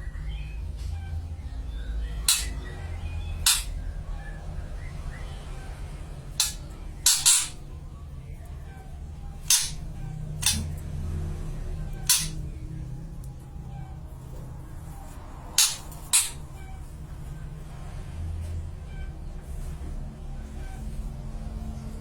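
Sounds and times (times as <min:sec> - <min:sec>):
sharp short clicks: 0:02.3 - 0:02.6, 0:03.4 - 0:03.8, 0:06.4 - 0:07.6, 0:09.4 - 0:10.8, 0:12.0 - 0:12.4, 0:15.6 - 0:16.5.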